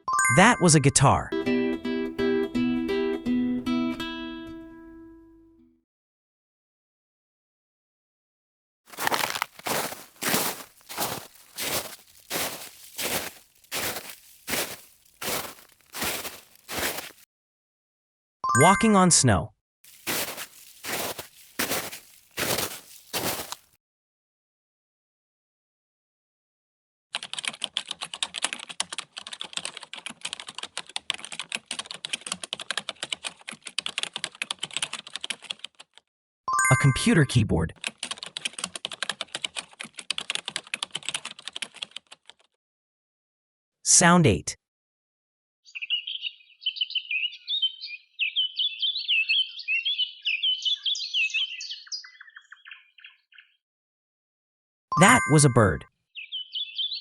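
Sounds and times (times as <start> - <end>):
computer keyboard typing: 27.2 - 35.9, 37.8 - 42.4
songbird singing chirps and trills: 45.7 - 53.6, 56.2 - 57.0.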